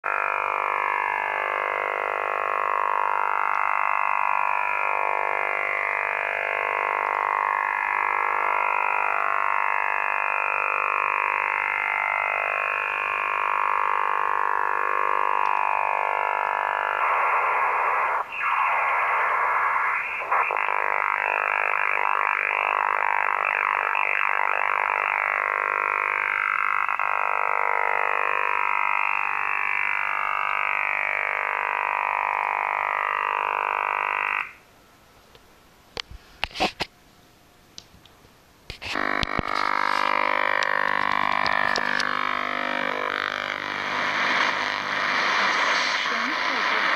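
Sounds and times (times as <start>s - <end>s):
harsh radio noise rush: 16.9s - 25.2s, 38.7s - 46.9s
radio tones with falling sweeps: 43.9s - 46.9s.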